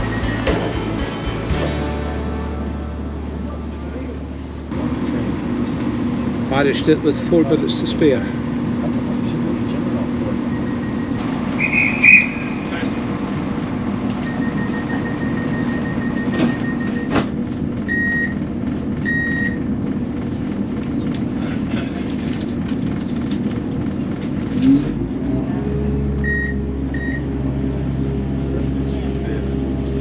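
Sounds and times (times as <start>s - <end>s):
diesel train engine hum: 0.0s - 19.0s
short warning beeps: 14.2s - 17.1s.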